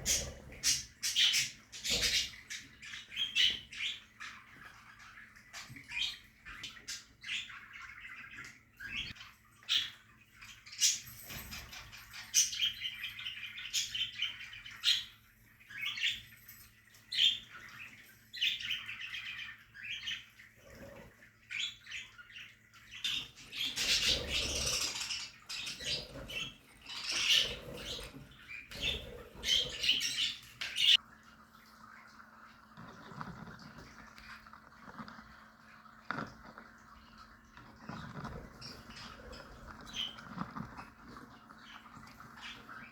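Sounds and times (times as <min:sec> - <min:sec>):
budgerigars chirping and chattering: 0:00.0 - 0:31.0, 0:32.8 - 0:42.9.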